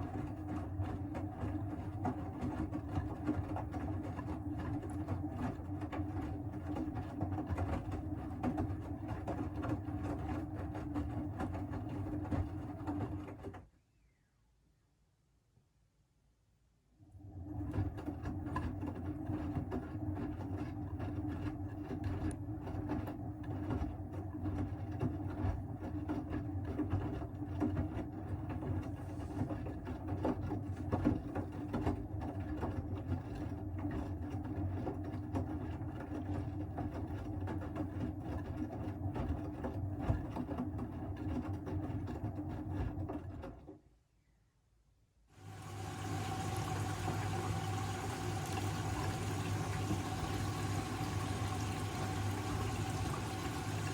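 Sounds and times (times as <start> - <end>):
washing machine drum turning: 45.4 - 53.9.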